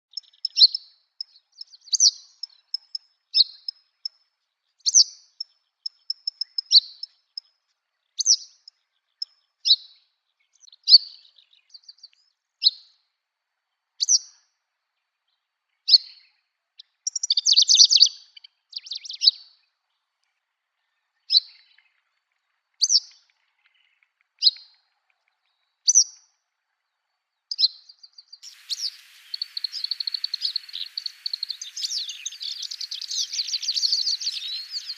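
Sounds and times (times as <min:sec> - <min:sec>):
bird singing buzzy phrases: 0:27.5 - 0:34.9
faint hiss: 0:28.4 - 0:34.9.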